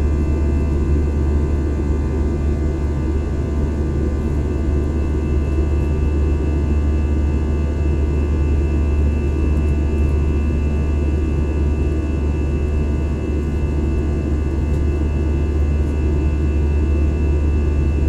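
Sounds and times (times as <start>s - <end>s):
airliner cabin rumble: 0.0s - 6.8s.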